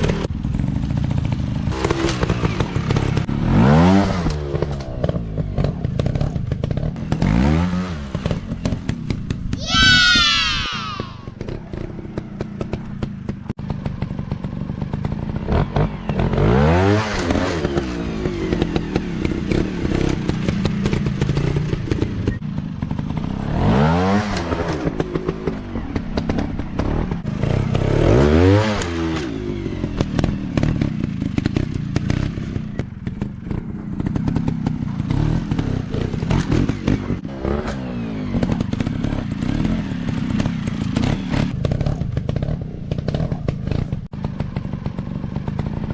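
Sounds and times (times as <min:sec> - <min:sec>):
dirt bike engines revving: 0:09.5 - 0:13.0.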